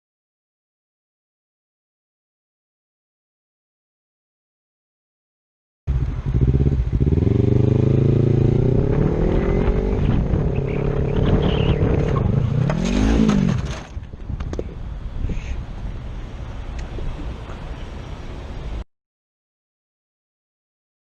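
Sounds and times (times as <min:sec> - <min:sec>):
vehicle engine accelerating and revving: 0:05.9 - 0:13.9.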